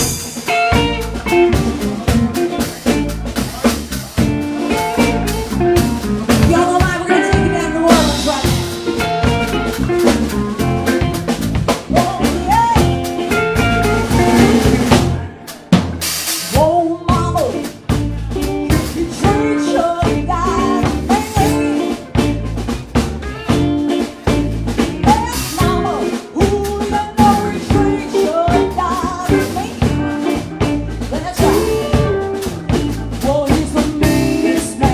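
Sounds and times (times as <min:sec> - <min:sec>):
bass drum and snare: 0:00.0 - 0:34.9
live blues band playing: 0:00.0 - 0:34.9.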